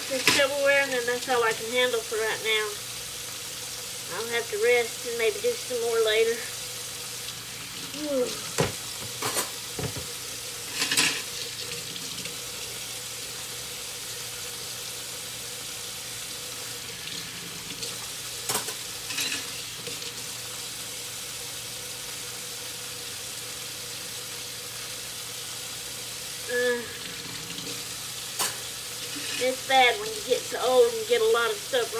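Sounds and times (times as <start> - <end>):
steady water hiss: 0.0 - 31.9
dishes and silverware clinking: 8.5 - 10.1, 10.7 - 11.3, 18.5 - 19.6, 28.4 - 29.5.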